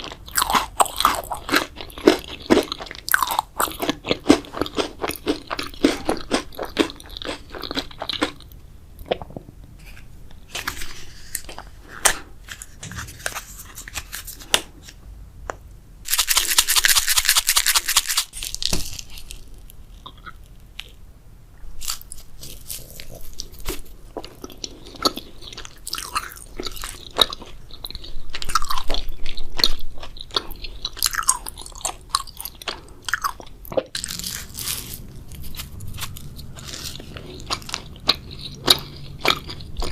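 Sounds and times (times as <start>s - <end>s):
chewing with wet clicks and crunches: 0.0s - 9.4s, 19.1s - 21.0s, 21.8s - 39.9s.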